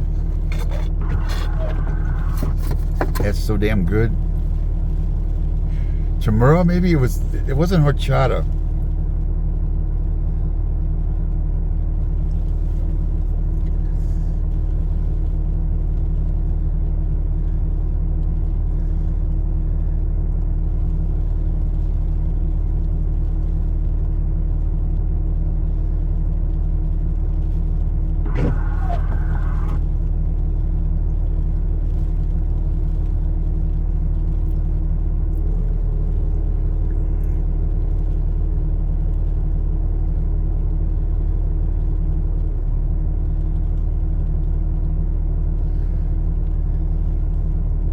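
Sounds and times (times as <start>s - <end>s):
vehicle engine idling: 0.0s - 47.9s.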